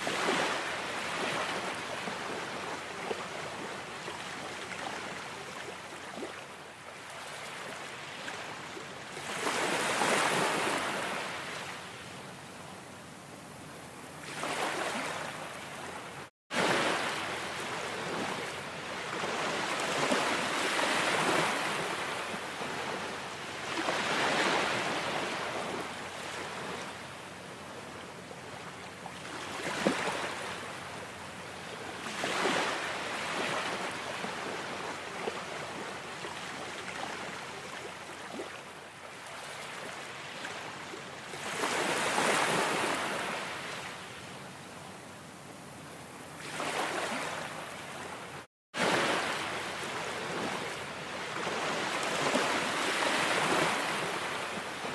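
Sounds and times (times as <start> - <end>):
ocean waves breaking: 0.0 - 6.4, 7.0 - 11.8, 14.2 - 26.9, 32.0 - 38.6, 41.4 - 43.9, 46.4 - 54.9.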